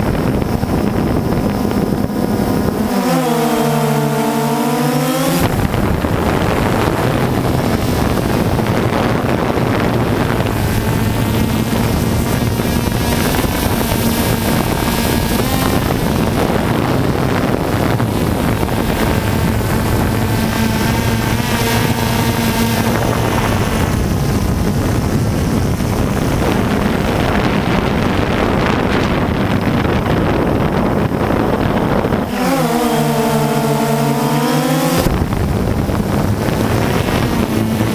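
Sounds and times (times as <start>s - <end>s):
quadcopter motors buzzing: 0.0s - 37.9s
wind rush over microphone: 0.0s - 37.9s.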